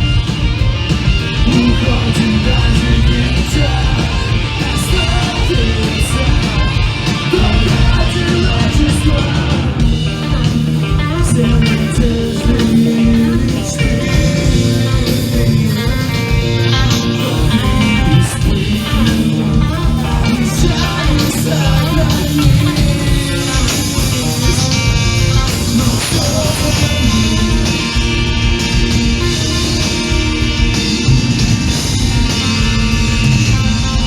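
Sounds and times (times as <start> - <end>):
bass guitar: 0.0 - 34.0
drums: 0.0 - 34.0
electric guitars: 0.0 - 34.0
person singing: 1.4 - 28.4.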